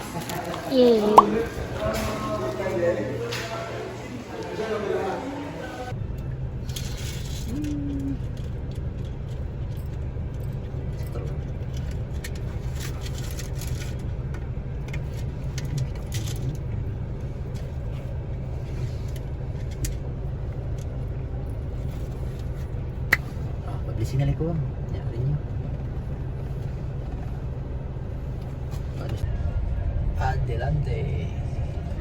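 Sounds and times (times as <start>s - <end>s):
vehicle engine and road rumble: 5.8s - 32.0s.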